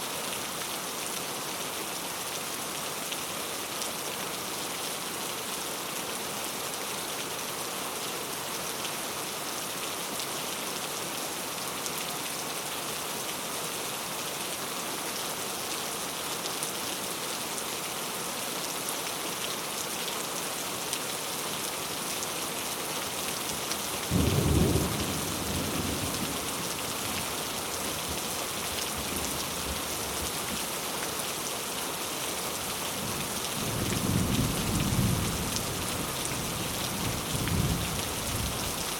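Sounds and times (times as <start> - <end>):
heavy rain falling: 0.1 - 38.9
low rumble of thunder: 24.1 - 26.5.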